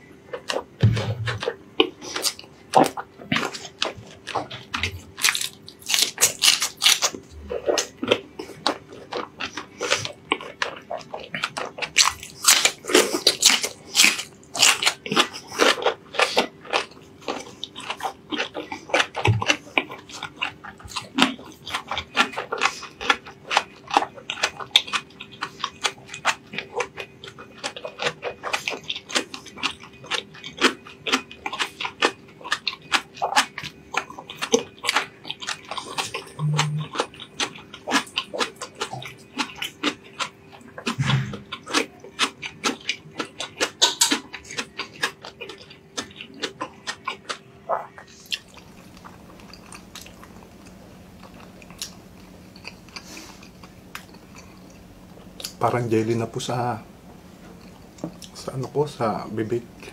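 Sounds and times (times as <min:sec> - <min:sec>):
man chewing food: 0:00.0 - 0:59.9.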